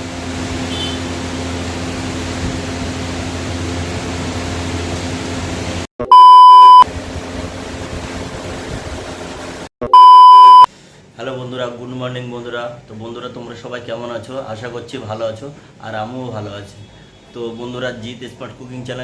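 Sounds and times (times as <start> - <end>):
high electronic beep: 6.0 - 6.8, 9.8 - 10.7.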